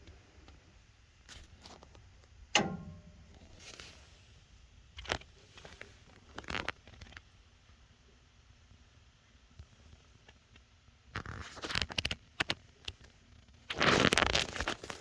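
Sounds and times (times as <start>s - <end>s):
sharp clicks in pipes: 2.5s - 3.8s
water pipes ticking: 2.6s - 3.5s.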